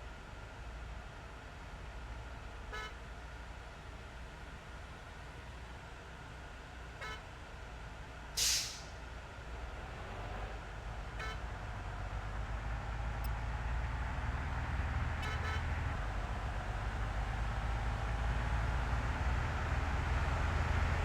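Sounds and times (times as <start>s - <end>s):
truck engine rumbling: 6.4s - 21.0s
air brake hiss: 8.4s - 9.0s.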